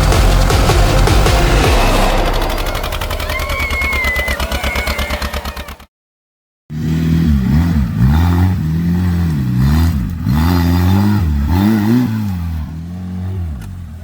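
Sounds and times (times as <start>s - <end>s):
tractor engine revving: 0.0s - 5.9s, 6.7s - 13.7s.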